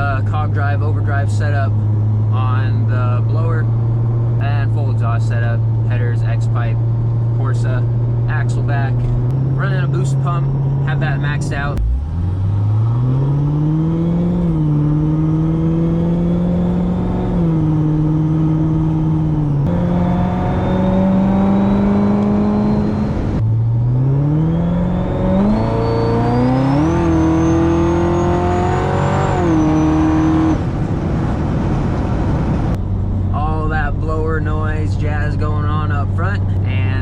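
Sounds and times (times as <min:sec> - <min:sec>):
supercharger whine: 0:00.2 - 0:36.6
car engine accelerating through gears: 0:06.8 - 0:33.3.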